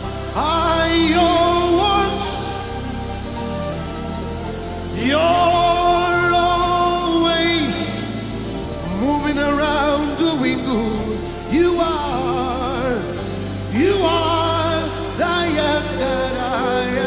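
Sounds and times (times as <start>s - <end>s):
held accompaniment chords: 0.0s - 17.0s.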